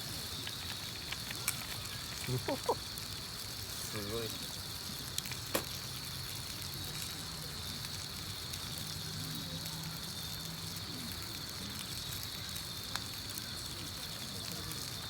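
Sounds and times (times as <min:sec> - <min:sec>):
campfire crackling: 0:00.0 - 0:15.0
steady hiss: 0:00.0 - 0:15.0
sharp pop of fire: 0:05.3 - 0:05.9.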